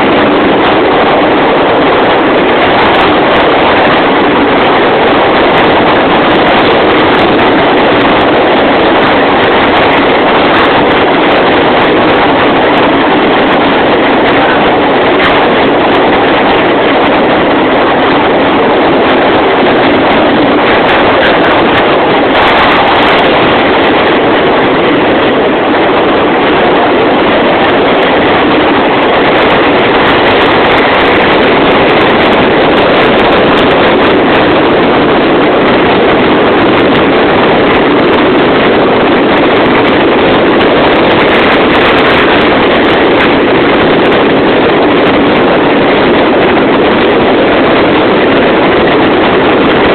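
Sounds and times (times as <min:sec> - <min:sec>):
train running through tunnel: 0:00.0 - 0:49.9.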